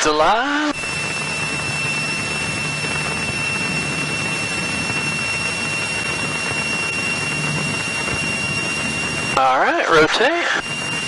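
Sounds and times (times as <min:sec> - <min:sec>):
airplane engine droning: 0:00.0 - 0:11.0
thin high whine: 0:00.0 - 0:11.0.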